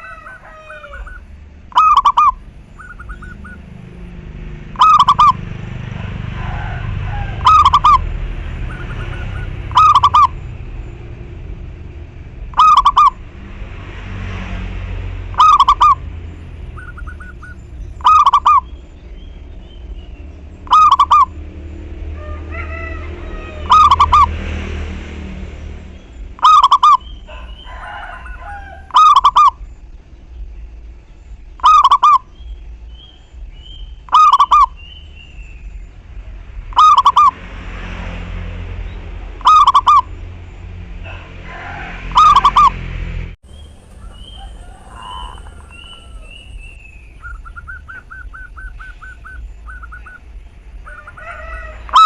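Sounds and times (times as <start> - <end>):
dove cooing: 0.0 - 4.0, 4.8 - 5.4, 6.0 - 10.4, 12.5 - 13.2, 15.3 - 16.0, 16.6 - 18.7, 20.7 - 21.3, 26.4 - 29.6, 41.0 - 42.7, 43.6 - 52.0
small birds chirping: 0.0 - 5.6, 7.4 - 13.2, 15.3 - 22.0, 25.8 - 37.4, 43.4 - 52.0
quick run of repeated bird notes: 0.0 - 6.0, 15.3 - 21.4, 31.5 - 35.7, 36.6 - 37.4, 43.5 - 52.0.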